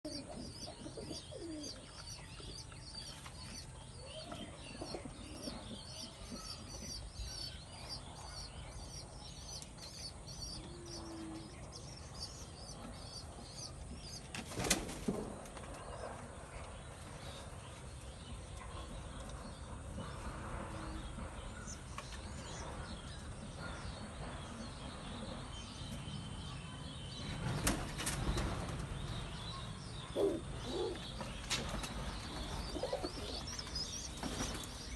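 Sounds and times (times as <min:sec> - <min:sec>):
small birds chirping: 0:00.0 - 0:14.9, 0:15.7 - 0:34.9
pigeons cooing: 0:00.1 - 0:02.3, 0:30.0 - 0:31.2, 0:32.6 - 0:34.6
wing flapping: 0:14.3 - 0:15.7.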